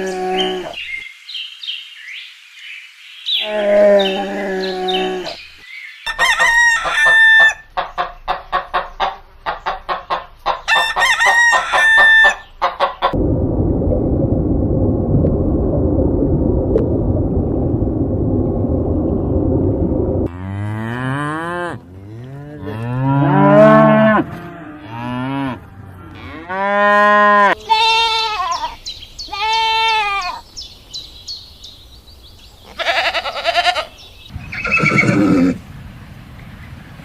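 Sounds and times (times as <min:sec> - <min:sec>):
low rumbling noise: 0:13.1 - 0:26.3
cattle mooing: 0:20.3 - 0:27.6.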